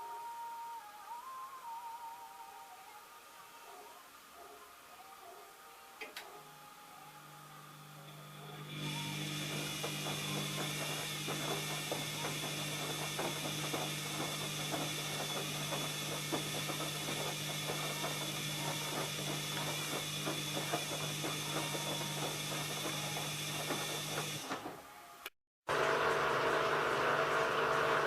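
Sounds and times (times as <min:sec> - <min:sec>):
washing machine motor hum: 0:06.2 - 0:24.9, 0:25.7 - 0:28.0.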